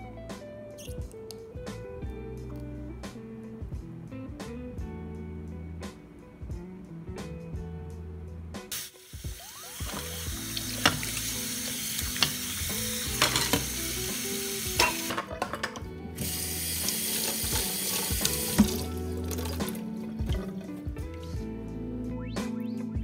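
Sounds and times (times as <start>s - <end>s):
tap running into steel sink: 9.9s - 14.2s, 14.8s - 20.5s
dishware clinking: 13.2s - 13.7s, 14.8s - 15.8s.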